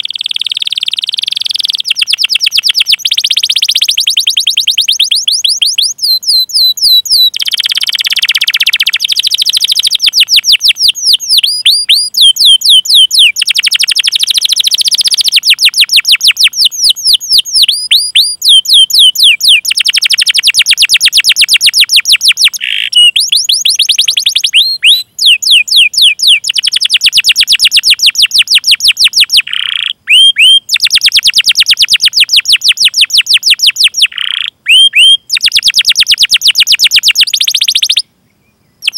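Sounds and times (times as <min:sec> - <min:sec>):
canary singing trills and chirps: 0:00.0 - 0:38.9.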